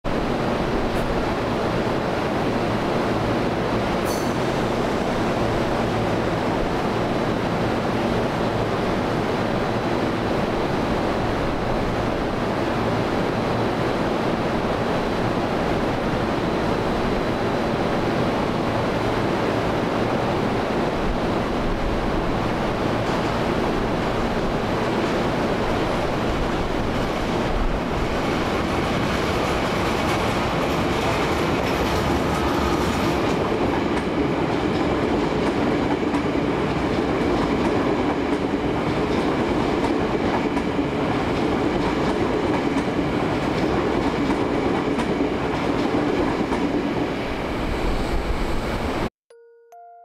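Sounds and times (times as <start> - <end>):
train wheels rumbling on rails: 0.1 - 49.1.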